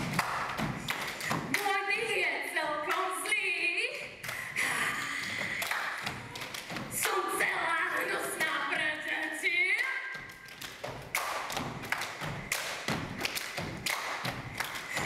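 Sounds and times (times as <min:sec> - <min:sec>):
feet thumping on stage floor: 0:10.2 - 0:15.0.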